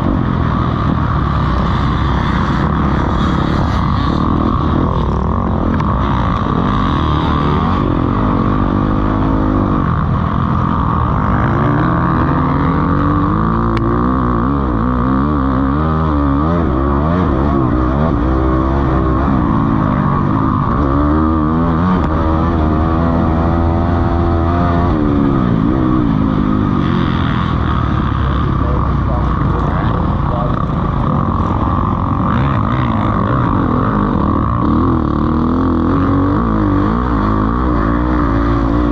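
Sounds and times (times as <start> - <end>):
motocross bike engines revving: 0.0 - 38.9.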